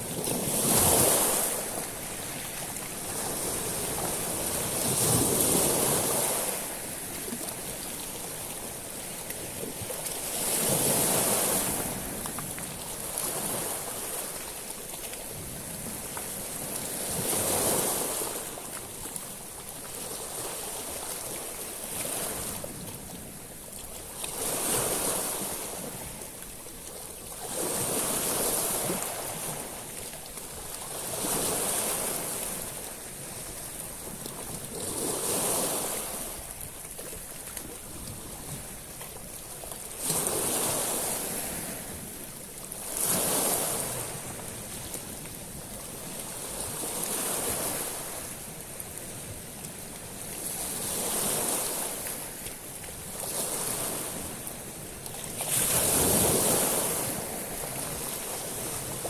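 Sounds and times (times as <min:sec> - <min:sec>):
background surf: 0:00.0 - 0:59.0
waves washing over small stones: 0:00.0 - 0:59.0.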